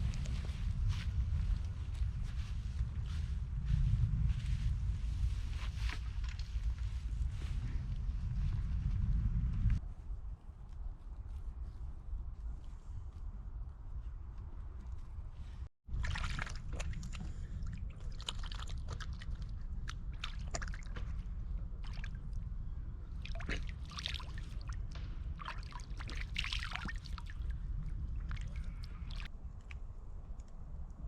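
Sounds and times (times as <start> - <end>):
steady low rumble: 0.0 - 10.6, 11.4 - 31.0
water sloshing and trickling: 15.9 - 29.3.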